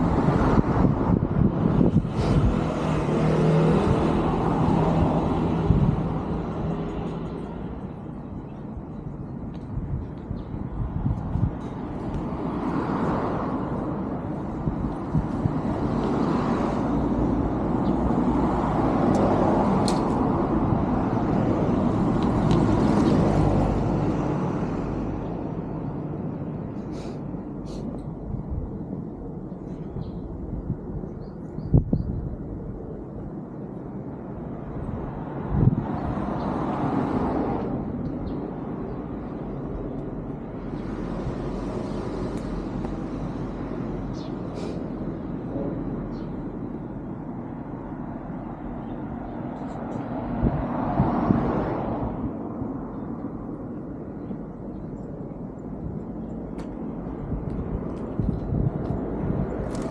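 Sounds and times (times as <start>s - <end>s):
vehicle passing: 0.0s - 7.8s
cars passing: 0.0s - 31.0s, 32.5s - 59.9s.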